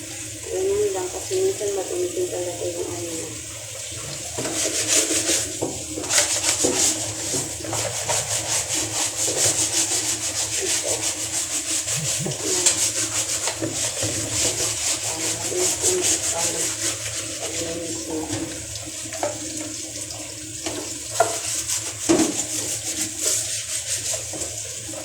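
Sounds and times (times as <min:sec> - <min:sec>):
rhythmic scrubbing strokes: 0:06.2 - 0:18.5.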